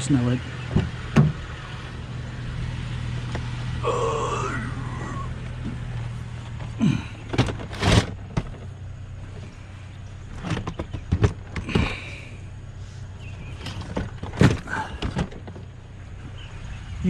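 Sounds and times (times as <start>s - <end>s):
steady low hum: 0.0s - 17.0s
heavy scrap clattering: 6.4s - 8.7s.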